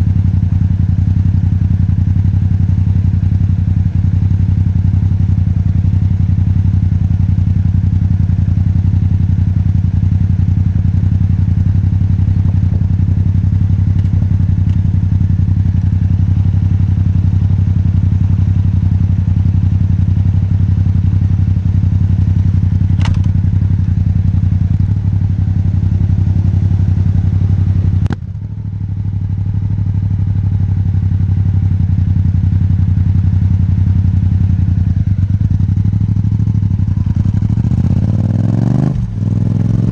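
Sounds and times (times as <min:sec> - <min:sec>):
motorcycle engine running: 0:00.0 - 0:39.9
sharp knock: 0:23.0 - 0:23.4.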